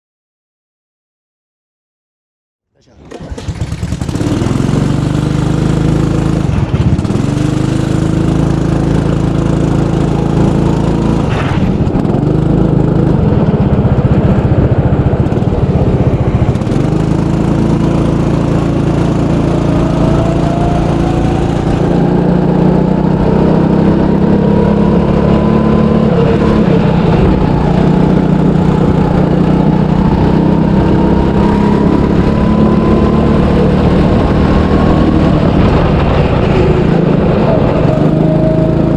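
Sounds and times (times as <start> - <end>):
go-kart engine running: 2.8 - 38.9
thin rising whine: 15.6 - 38.9.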